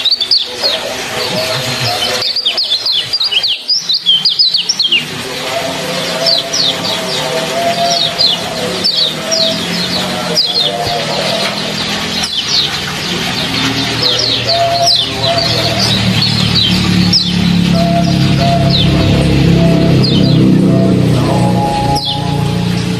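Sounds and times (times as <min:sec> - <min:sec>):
water trickling: 0:00.0 - 0:22.9
faint music with low notes: 0:04.8 - 0:22.9.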